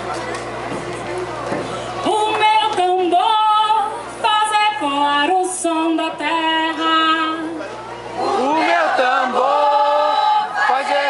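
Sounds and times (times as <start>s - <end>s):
woman singing unaccompanied: 2.0s - 7.6s.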